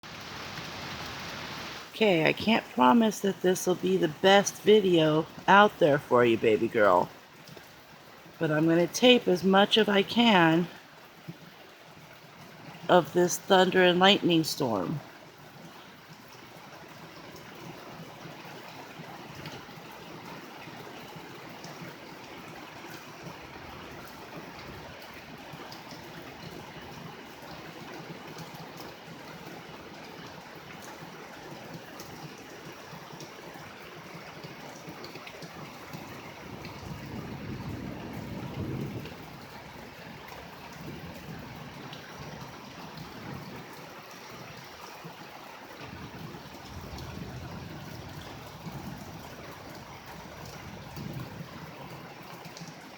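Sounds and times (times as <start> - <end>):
steady rain: 0.0 - 52.9
thunder rumbling: 36.3 - 42.3, 45.8 - 52.2.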